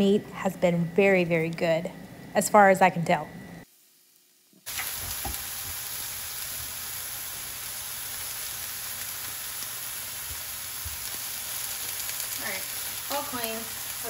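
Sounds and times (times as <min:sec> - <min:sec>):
chicken sizzling in oil: 0:03.7 - 0:14.0.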